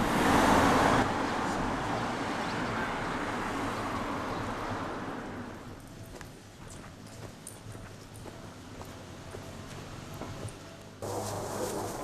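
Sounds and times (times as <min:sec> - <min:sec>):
train passing: 0:08.3 - 0:12.0.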